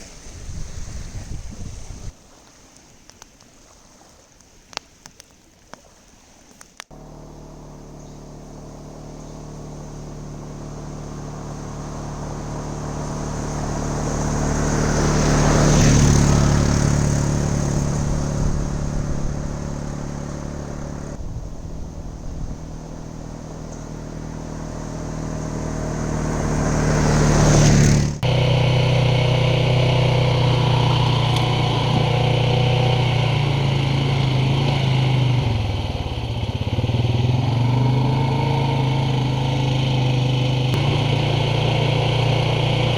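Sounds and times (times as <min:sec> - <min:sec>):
atv engine passing by: 0:06.9 - 0:42.9.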